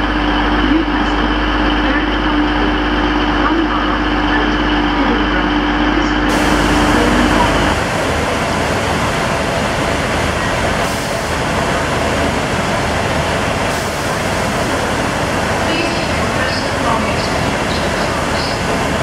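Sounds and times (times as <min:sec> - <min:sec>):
diesel trains rumbling and hissing: 0:00.0 - 0:19.0
low steady hum: 0:06.0 - 0:10.5.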